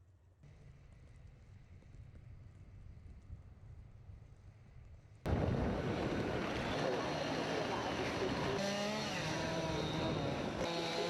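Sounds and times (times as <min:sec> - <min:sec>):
low traffic rumble: 0:00.2 - 0:11.0
tyres rushing on slushy road: 0:05.4 - 0:08.6.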